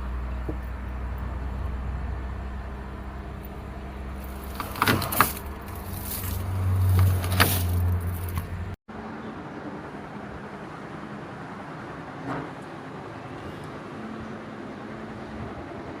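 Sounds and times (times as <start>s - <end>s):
vehicle engine droning: 0.0s - 16.0s.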